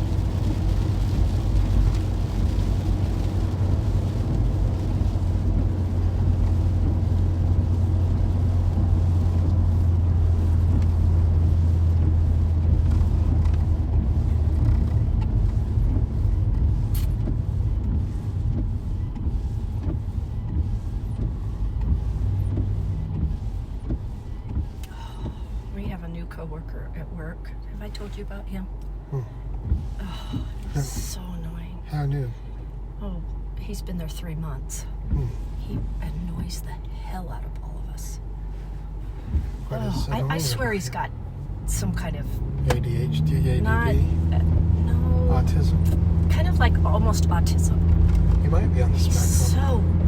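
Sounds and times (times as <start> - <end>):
engine and tyre drone: 0.0 - 27.3, 38.2 - 50.0
road noise hiss: 0.0 - 50.0.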